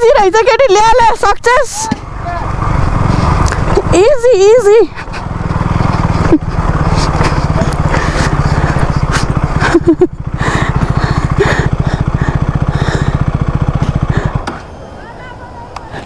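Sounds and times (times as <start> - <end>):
motorcycle engine chugging: 0.0 - 16.0.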